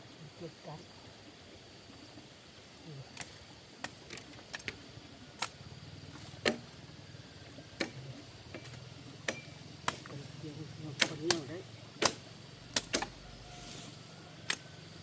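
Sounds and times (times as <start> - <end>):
blade chopping wood: 6.4 - 6.7, 8.6 - 10.3, 11.0 - 13.2.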